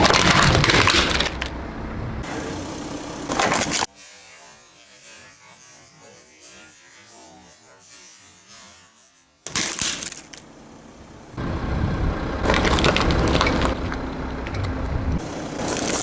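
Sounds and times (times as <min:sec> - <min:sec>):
tyre crushing crunchy objects: 0:00.0 - 0:01.5, 0:12.4 - 0:13.8
rolling car rumble: 0:00.0 - 0:03.9, 0:10.4 - 0:16.0.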